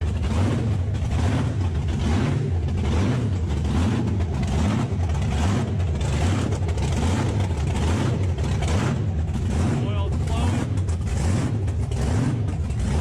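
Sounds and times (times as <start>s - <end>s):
golf cart engine running: 0.0s - 13.0s.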